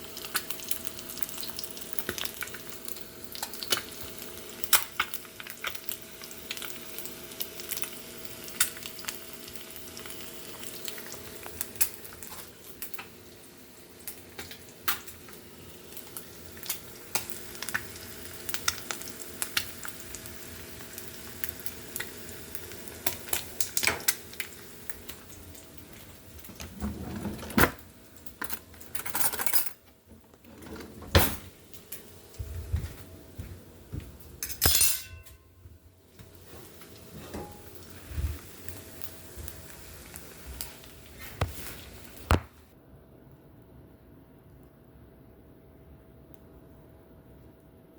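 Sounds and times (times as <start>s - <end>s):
eggs sizzling: 0.0s - 26.8s, 36.1s - 42.6s.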